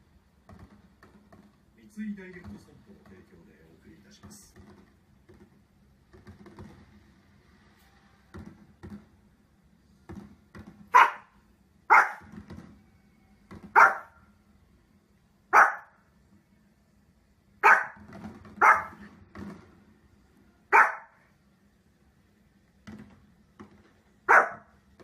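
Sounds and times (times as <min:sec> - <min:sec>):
dog barking: 0:10.9 - 0:12.3, 0:13.7 - 0:14.2, 0:15.5 - 0:16.0, 0:17.6 - 0:19.1, 0:20.7 - 0:21.2, 0:24.3 - 0:24.7.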